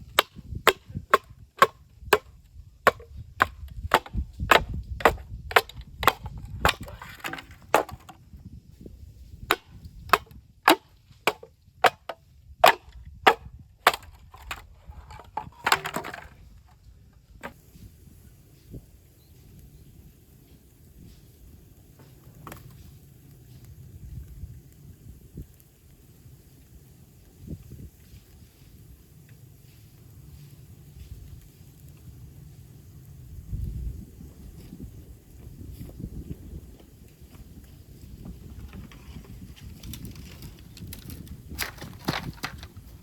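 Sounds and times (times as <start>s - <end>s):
bamboo being chopped with a blade: 0.1s - 2.3s, 2.9s - 8.1s, 9.4s - 14.6s
splintering crackle: 9.5s - 16.4s, 37.1s - 43.0s.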